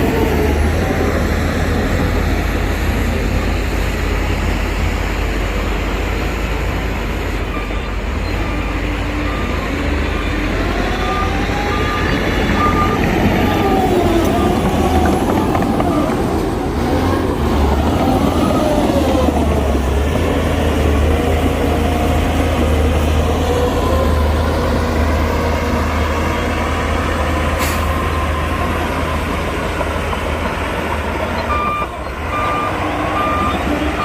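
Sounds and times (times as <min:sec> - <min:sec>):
diesel machinery engine rumble: 0:00.0 - 0:34.0
reversing alarm beeping: 0:07.4 - 0:14.8, 0:31.3 - 0:34.0.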